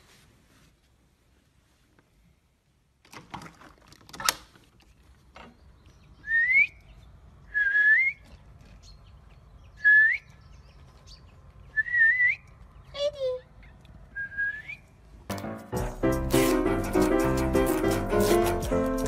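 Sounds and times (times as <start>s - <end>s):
person whistling short notes: 6.2s - 6.8s, 7.5s - 8.2s, 9.8s - 10.2s, 11.8s - 12.4s, 14.2s - 14.9s.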